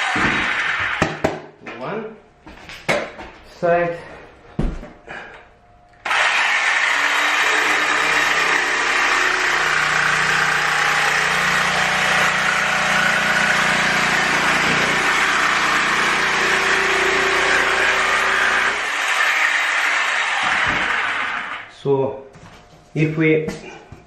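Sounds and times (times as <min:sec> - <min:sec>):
electric jigsaw cutting: 0:00.0 - 0:01.2, 0:06.0 - 0:21.7.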